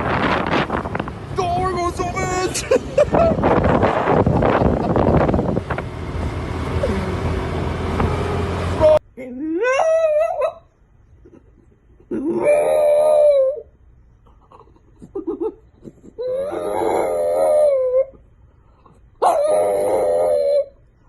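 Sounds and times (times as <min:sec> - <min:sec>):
dog howling: 0:12.3 - 0:13.7, 0:16.2 - 0:18.2, 0:19.2 - 0:20.8.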